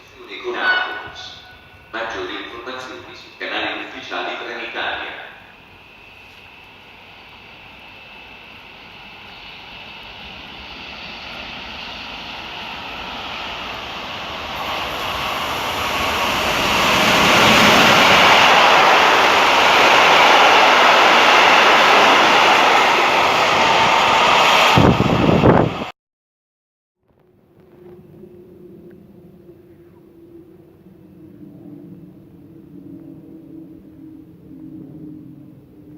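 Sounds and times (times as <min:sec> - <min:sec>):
train passing: 0:00.0 - 0:25.9.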